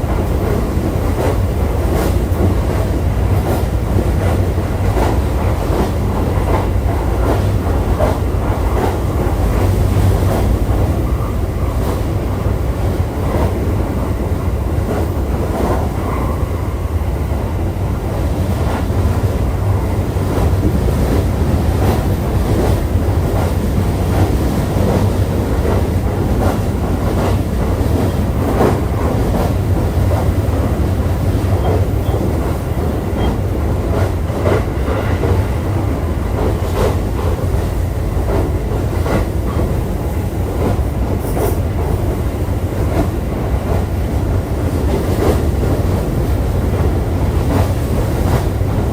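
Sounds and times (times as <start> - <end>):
train wheels rumbling on rails: 0.0 - 48.9
track clicks and clatter: 17.7 - 48.9.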